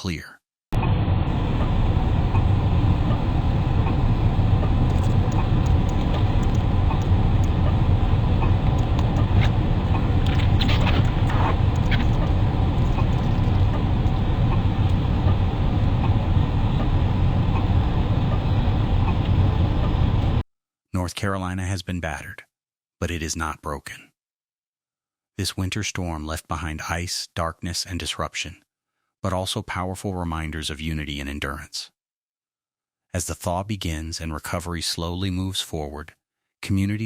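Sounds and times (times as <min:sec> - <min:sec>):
motor vehicle engine rumbling: 0:00.8 - 0:20.4
faint clicks: 0:01.4 - 0:20.4.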